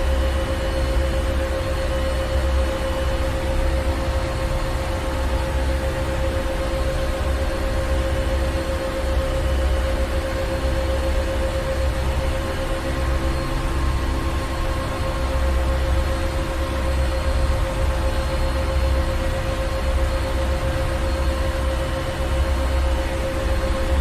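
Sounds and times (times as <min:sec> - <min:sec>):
engine room machinery rumbling: 0:20.4 - 0:24.0.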